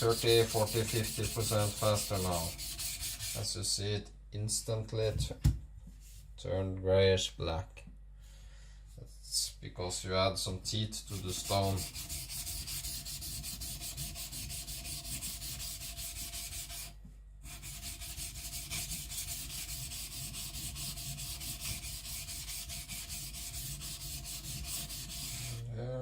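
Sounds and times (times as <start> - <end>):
blade scraping on whetstone: 0.0 - 3.4, 17.5 - 25.6.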